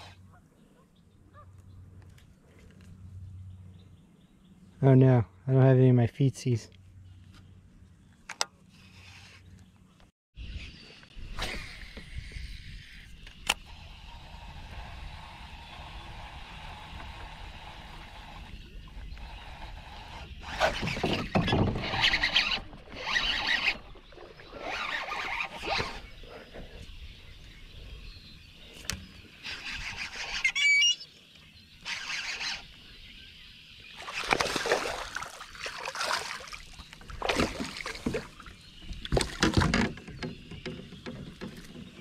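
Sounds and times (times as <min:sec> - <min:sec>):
kayak paddle splashing in water: 0:34.0 - 0:40.0.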